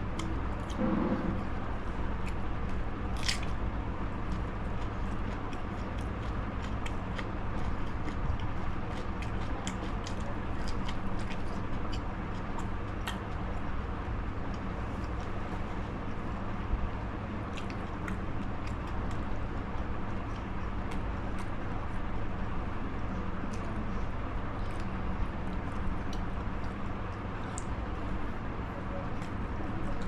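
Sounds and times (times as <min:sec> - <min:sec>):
low background hum: 0:00.0 - 0:30.0
person biting and chewing: 0:00.2 - 0:03.6.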